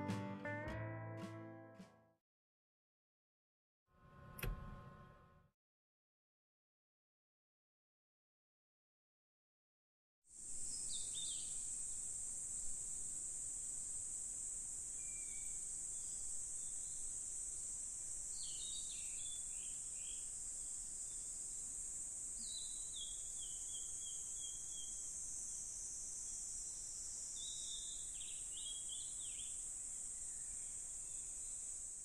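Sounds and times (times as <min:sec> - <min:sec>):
high-pitched insect chorus: 0:10.4 - 0:32.0
songbird singing: 0:10.6 - 0:11.7, 0:14.9 - 0:17.1, 0:18.2 - 0:31.6.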